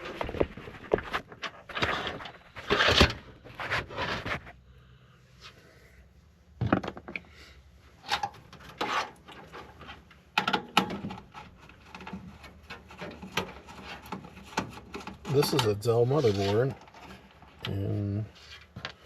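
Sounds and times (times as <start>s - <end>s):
scraping and rustling: 0.0s - 4.6s, 8.0s - 10.3s, 10.9s - 17.6s
computer parts knocking and clattering: 6.6s - 7.2s, 10.4s - 15.8s.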